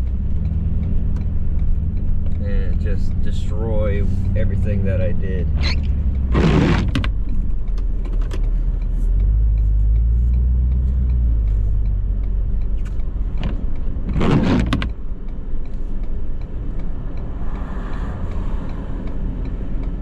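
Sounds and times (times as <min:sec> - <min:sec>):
diesel engine rumbling under load: 0:00.0 - 0:20.0.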